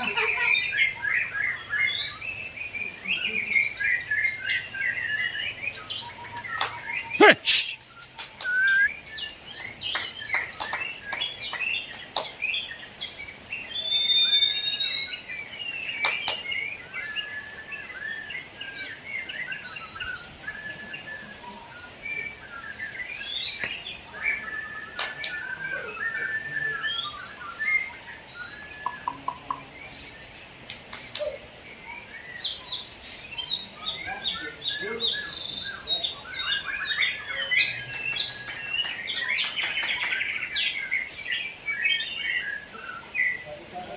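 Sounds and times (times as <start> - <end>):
songbirds singing: 0.0 - 43.9.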